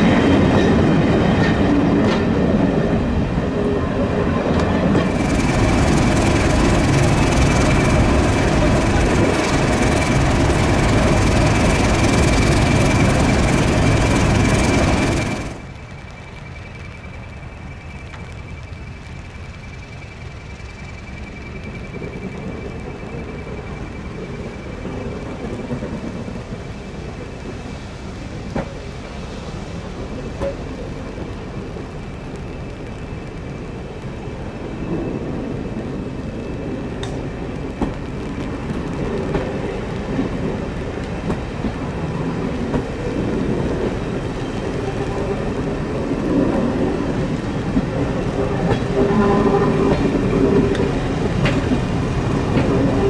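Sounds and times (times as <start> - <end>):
diesel locomotive engine: 0.0 - 53.0
train coaches rolling past: 0.0 - 53.0
wheels clicking over rail joints: 4.2 - 53.0.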